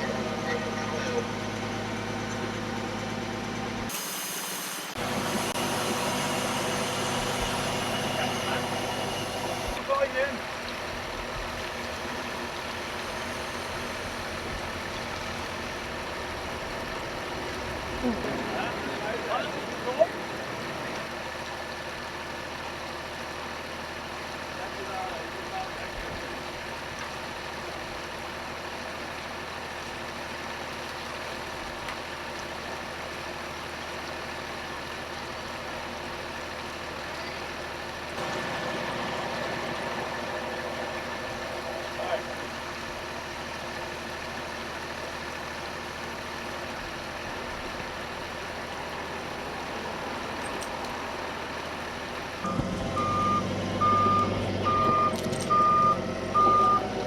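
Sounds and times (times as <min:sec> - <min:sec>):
heavy engine running steadily: 0:00.0 - 0:57.0
thin high whine: 0:03.9 - 0:09.8.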